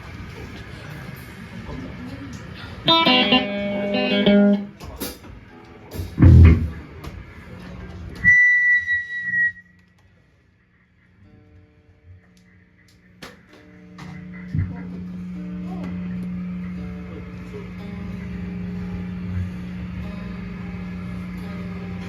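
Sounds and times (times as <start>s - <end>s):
electric guitar chord ringing: 2.6s - 4.8s, 6.2s - 6.8s, 13.8s - 22.0s
steady high whine: 2.6s - 4.8s, 6.0s - 7.1s, 13.7s - 22.0s
heavy low thump: 6.2s - 6.8s.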